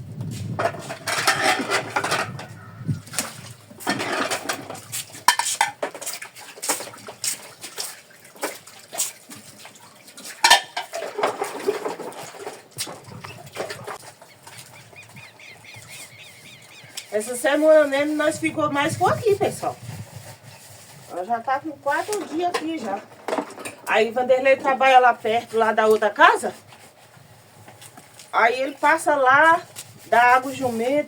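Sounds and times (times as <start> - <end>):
dishes clattering while washed: 0.5 - 16.0, 21.9 - 26.9.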